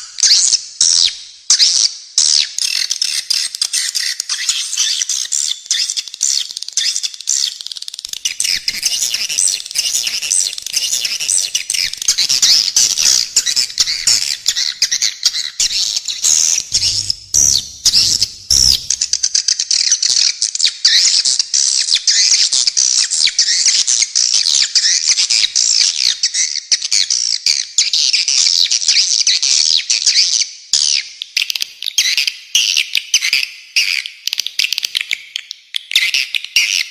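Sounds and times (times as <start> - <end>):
birds chattering with high chirps: 2.4 - 19.4.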